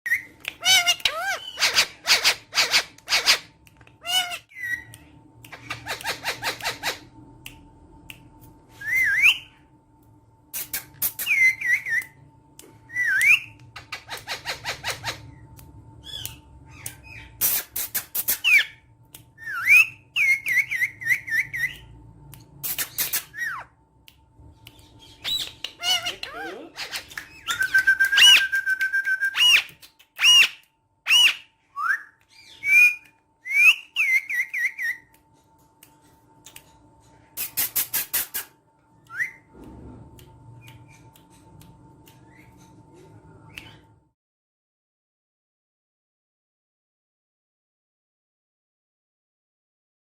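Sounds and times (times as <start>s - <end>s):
parakeets whistling: 0.1s - 7.1s, 10.6s - 12.2s, 16.0s - 21.9s, 24.7s - 35.1s
parakeets squawking: 0.2s - 4.9s, 5.5s - 7.1s, 13.0s - 15.4s, 24.8s - 28.5s.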